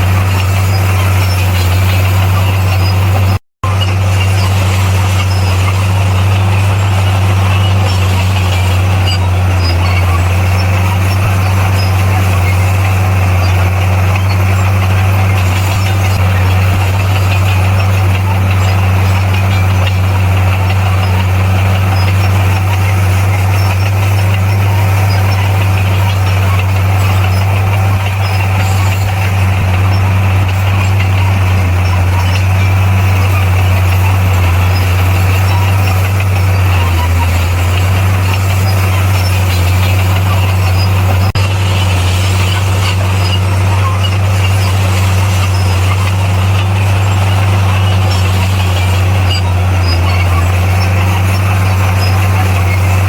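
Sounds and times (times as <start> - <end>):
bulldozer diesel engine running: 0.0 - 53.0.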